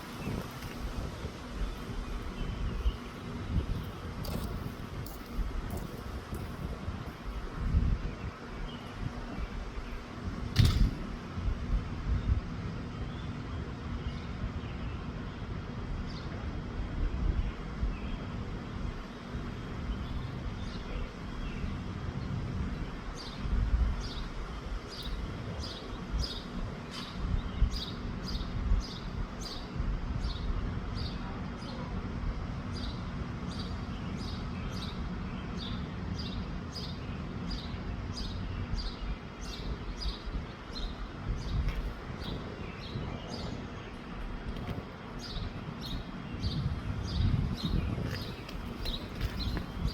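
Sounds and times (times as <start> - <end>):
wind buffeting microphone: 0.0 - 49.9
bird chirping: 32.8 - 49.9.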